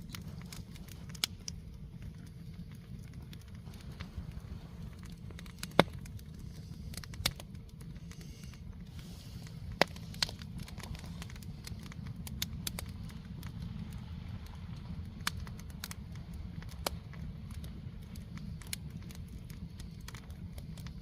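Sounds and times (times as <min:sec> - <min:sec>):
campfire crackling and popping: 0:00.0 - 0:21.0
steady low rumble: 0:00.0 - 0:21.0.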